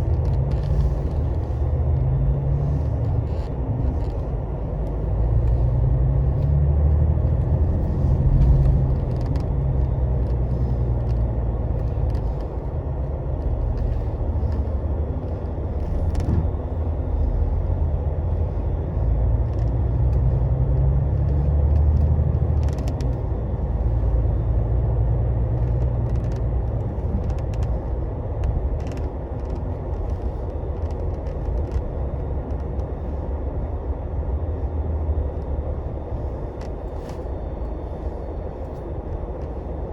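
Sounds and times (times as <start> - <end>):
diesel engine drone: 0.0 - 39.9
road rumble: 0.0 - 39.9
faint clicks and rattles: 7.2 - 17.7, 18.3 - 33.4.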